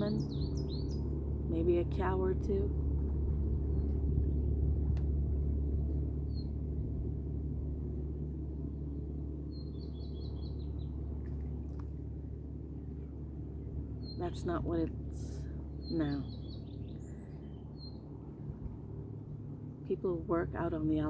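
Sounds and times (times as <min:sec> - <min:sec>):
bird chirping and trilling: 0:00.0 - 0:01.0, 0:09.5 - 0:10.9
motorboat engine drone: 0:00.0 - 0:21.0.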